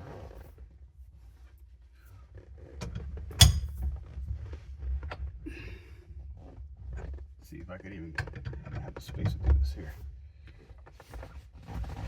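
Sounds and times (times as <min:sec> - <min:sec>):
metal tools clinking: 0:03.4 - 0:03.8
sharp metallic clank: 0:03.4 - 0:03.8.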